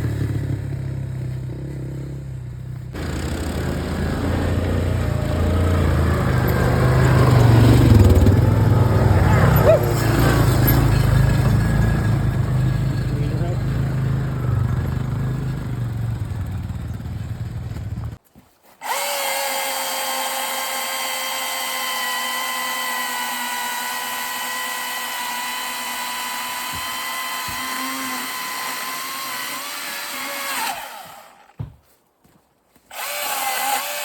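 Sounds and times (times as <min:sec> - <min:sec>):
atv engine rumble: 0:00.0 - 0:18.2
chainsaw cutting wood: 0:02.9 - 0:14.3, 0:18.8 - 0:31.8, 0:32.8 - 0:34.0.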